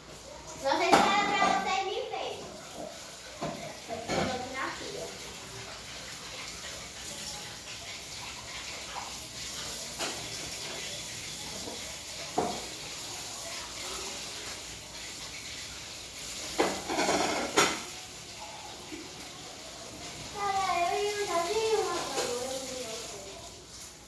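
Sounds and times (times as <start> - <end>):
dishes and cutlery clinking: 0.8 - 4.8, 6.4 - 13.0, 16.2 - 20.1, 21.2 - 23.1.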